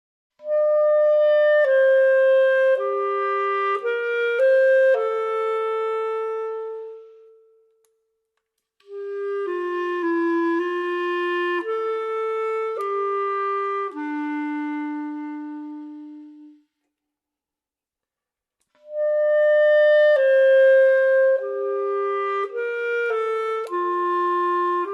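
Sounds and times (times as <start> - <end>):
slow woodwind melody: 0.4 - 8.2, 8.8 - 17.0, 18.6 - 24.9.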